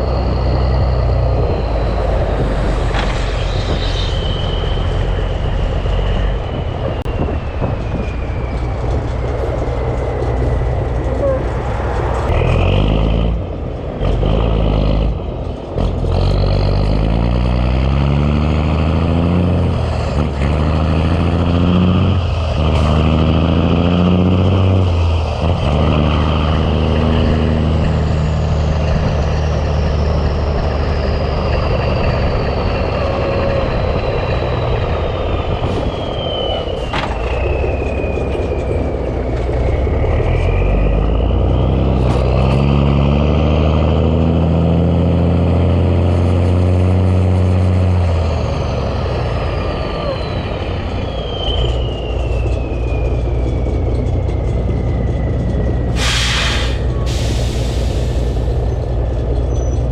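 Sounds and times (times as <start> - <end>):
high whistle falling in pitch: 0.0 - 9.4, 32.9 - 41.5, 49.5 - 54.5
diesel truck engine accelerating: 0.0 - 59.9.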